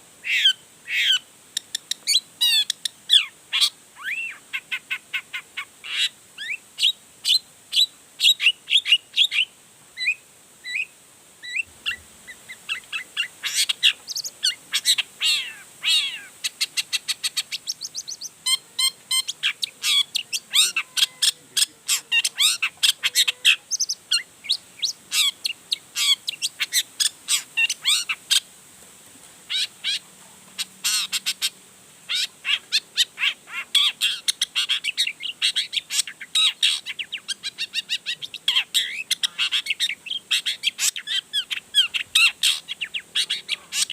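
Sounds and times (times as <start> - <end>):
bird singing chirps and trills: 6.4 - 28.2.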